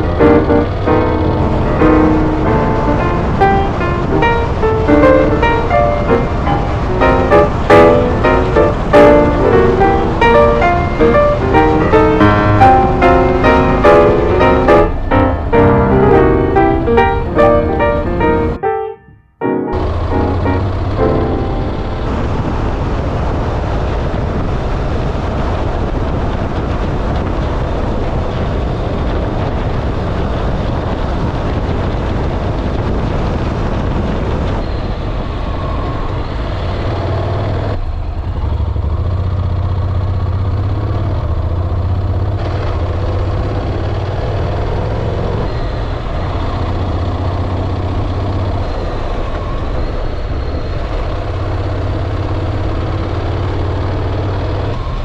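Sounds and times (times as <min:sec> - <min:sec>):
wind noise: 0:20.8 - 0:36.9.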